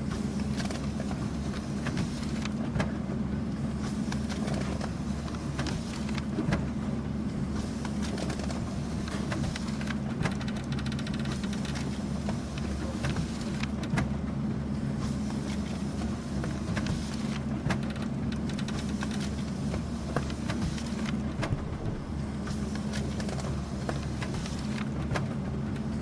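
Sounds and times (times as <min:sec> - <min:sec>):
printer humming: 0:00.0 - 0:26.0
printer fast rattle: 0:07.6 - 0:14.1, 0:16.0 - 0:25.3
printer clicks: 0:09.1 - 0:11.9, 0:16.7 - 0:19.4.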